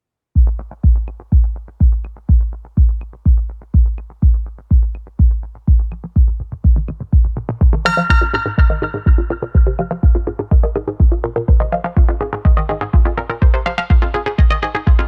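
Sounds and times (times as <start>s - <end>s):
hi-hat ticks: 0.4s - 11.9s
electronic dance music: 0.4s - 15.0s
heavy kick drum: 0.4s - 15.0s.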